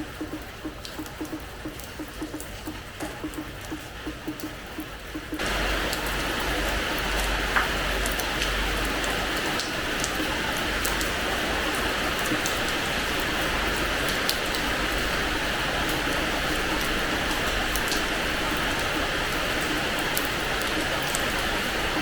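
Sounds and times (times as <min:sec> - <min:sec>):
rain falling on a floor: 0:00.0 - 0:22.0
raindrop ticks: 0:00.0 - 0:22.0.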